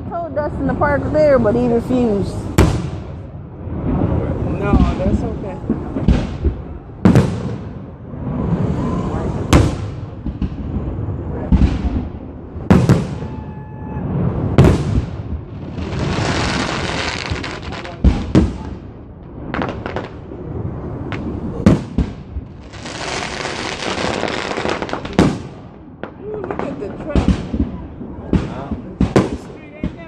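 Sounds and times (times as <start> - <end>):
firework shells booming: 2.3 - 30.0
fireworks crackling hiss: 14.0 - 18.7, 19.4 - 30.0.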